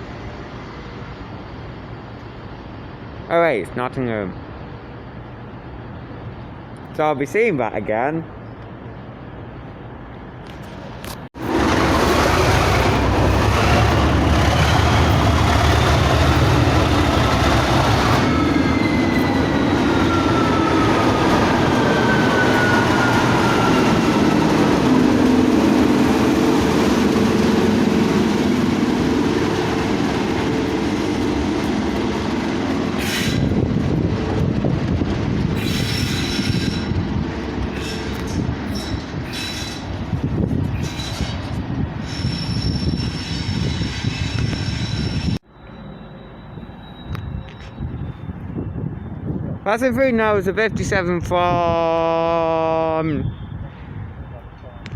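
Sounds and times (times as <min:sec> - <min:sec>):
train passing: 0:00.0 - 0:54.9
train clicks and rattles: 0:10.4 - 0:18.2
wheels squealing on rails: 0:11.4 - 0:25.7, 0:29.8 - 0:33.7, 0:35.4 - 0:49.6.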